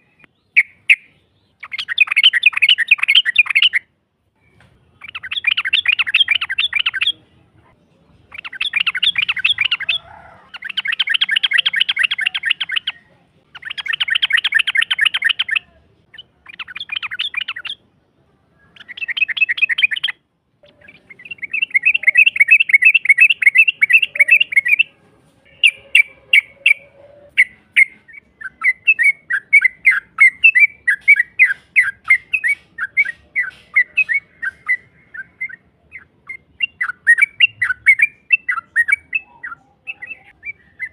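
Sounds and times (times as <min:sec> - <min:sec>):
bird chattering in trills: 0:00.0 - 0:03.8, 0:05.0 - 0:07.2, 0:08.3 - 0:17.8, 0:18.6 - 0:24.9, 0:25.5 - 0:40.9
sharp bird notes: 0:00.0 - 0:07.2, 0:18.6 - 0:40.9.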